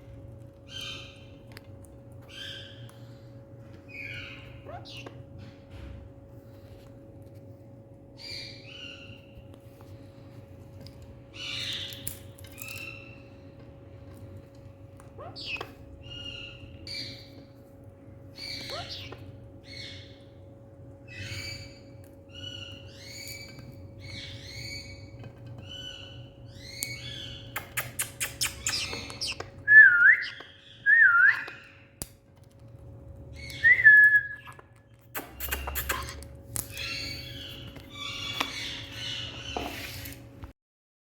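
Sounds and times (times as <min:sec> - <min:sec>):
parrot chirps and squawks: 0:03.9 - 0:05.2, 0:15.1 - 0:17.3, 0:18.4 - 0:20.2, 0:21.1 - 0:29.5, 0:34.4 - 0:40.2.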